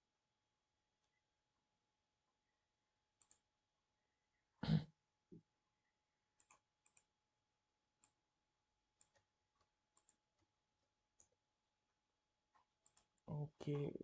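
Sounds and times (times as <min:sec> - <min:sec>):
faint computer clicks: 0:06.4 - 0:07.1, 0:12.5 - 0:13.9.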